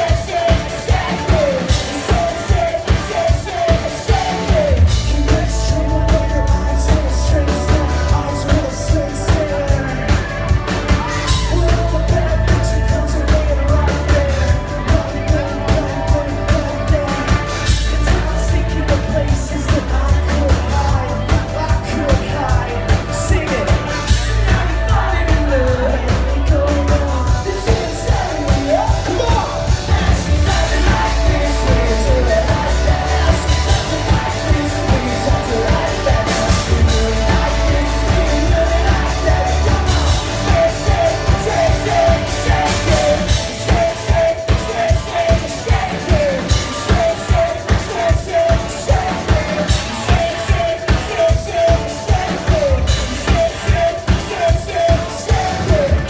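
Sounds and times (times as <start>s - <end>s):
person singing: 0.0s - 56.0s
synthpop band over loud pa: 0.0s - 56.0s.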